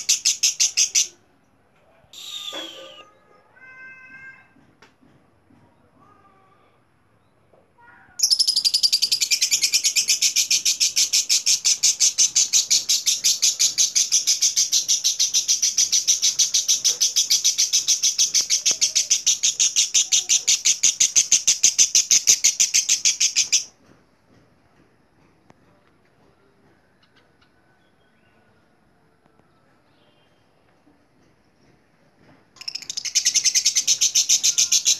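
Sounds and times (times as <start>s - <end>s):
lovebird shrill chattering trill: 2.2s - 3.0s, 8.2s - 23.7s, 32.6s - 34.9s.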